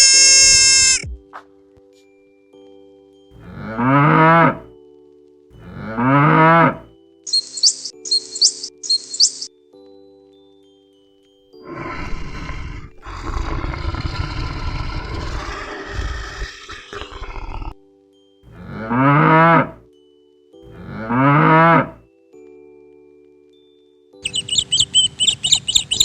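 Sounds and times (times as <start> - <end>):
cow mooing: 3.4 - 4.7, 5.6 - 6.9, 18.5 - 19.8, 20.7 - 22.0
rough unpitched animal sound: 12.0 - 17.8.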